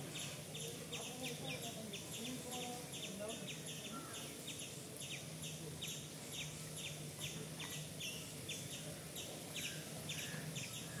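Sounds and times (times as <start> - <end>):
birds chirping in trees: 0.0 - 11.0.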